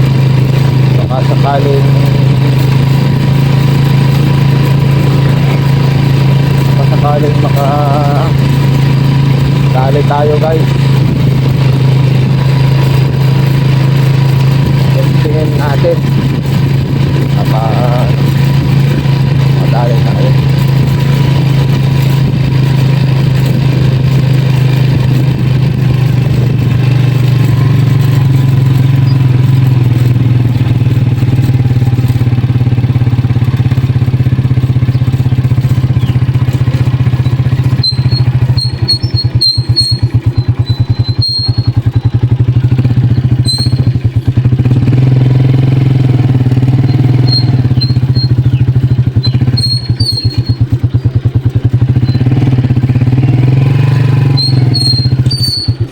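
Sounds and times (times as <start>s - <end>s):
motorcycle engine running: 0.0s - 55.9s
short high squeaks: 24.2s - 44.5s, 45.1s - 55.9s.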